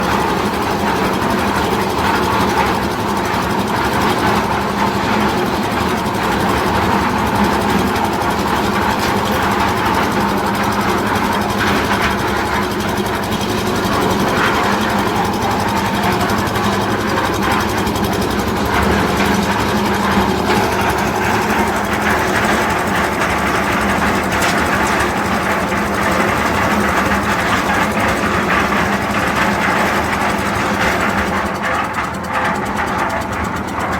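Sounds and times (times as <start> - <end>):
machinery hum: 5.0 - 30.2.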